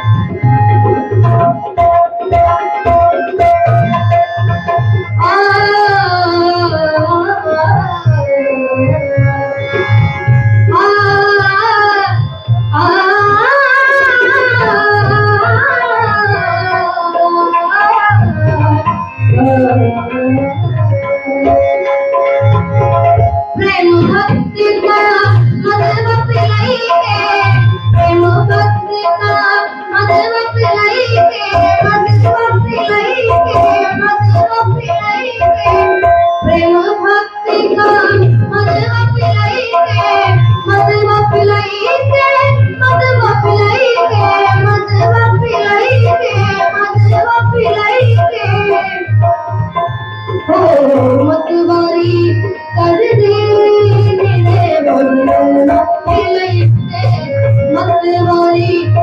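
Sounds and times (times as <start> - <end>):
harmonium: 0.0 - 59.0
child singing: 5.2 - 8.3, 10.7 - 20.5, 23.6 - 49.0, 50.5 - 59.0.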